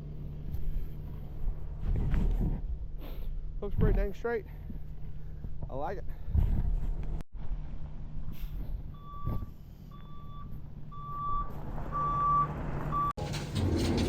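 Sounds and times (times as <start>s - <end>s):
back-up alarm beeping: 9.0s - 13.1s
diesel engine running: 10.7s - 14.0s.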